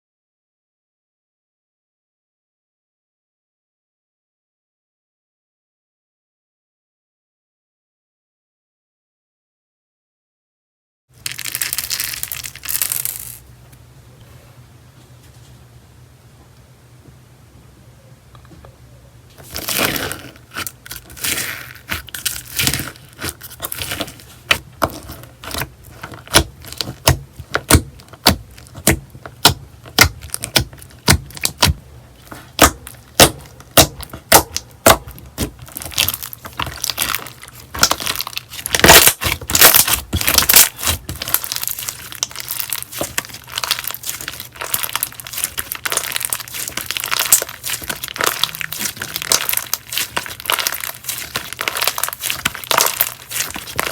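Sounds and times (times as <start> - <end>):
slime popping and crackling: 11.2 - 13.4, 19.4 - 53.9.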